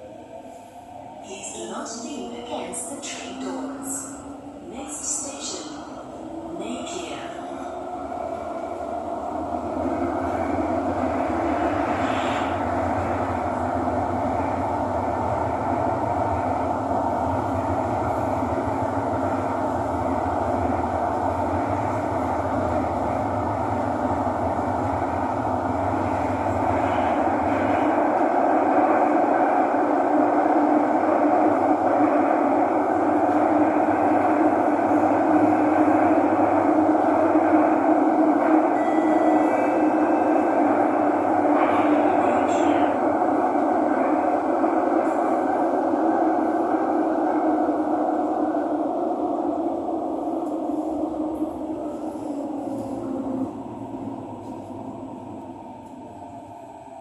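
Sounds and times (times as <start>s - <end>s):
metro train running noise: 0.0s - 57.0s.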